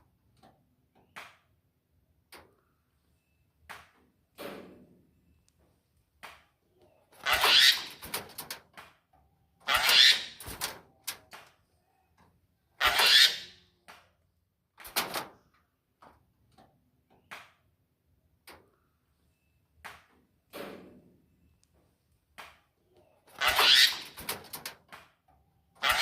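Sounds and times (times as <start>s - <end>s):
starling harsh calls: 7.2s - 8.0s, 9.7s - 10.4s, 12.8s - 13.6s, 23.4s - 24.2s.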